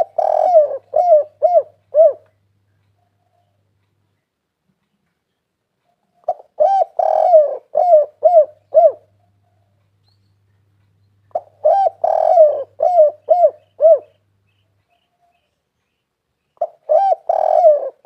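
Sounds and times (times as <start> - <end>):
dove cooing: 0.0 - 2.4, 5.9 - 9.8, 11.3 - 14.2, 16.6 - 18.0.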